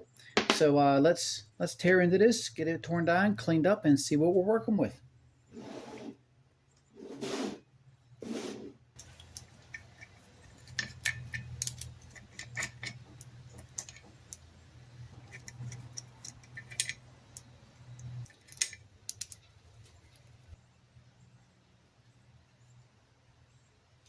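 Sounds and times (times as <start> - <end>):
low steady hum: 8.8 - 24.0
metallic clicks of hand tools: 9.0 - 19.5.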